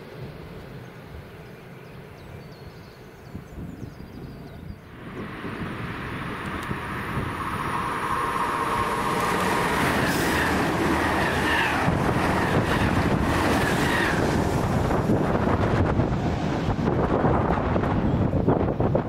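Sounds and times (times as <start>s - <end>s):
train passing at speed: 0.0s - 19.0s
wind buffeting microphone: 3.2s - 19.0s
high whine: 4.9s - 18.6s.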